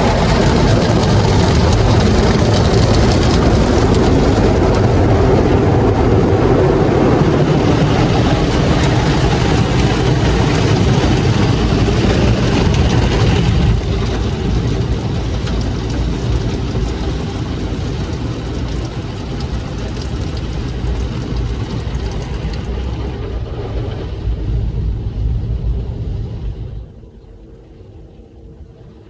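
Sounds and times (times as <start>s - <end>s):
loud mechanical rumble: 0.0s - 29.0s.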